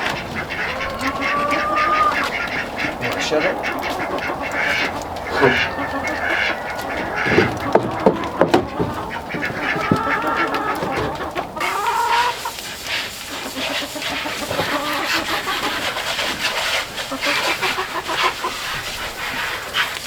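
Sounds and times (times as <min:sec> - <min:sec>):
chickens clucking: 0:00.0 - 0:20.0
sharp knocks: 0:07.2 - 0:10.1.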